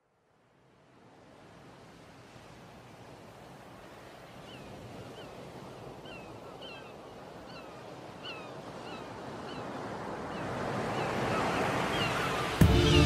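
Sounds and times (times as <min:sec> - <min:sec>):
sea surf washing in: 0:09.2 - 0:13.0.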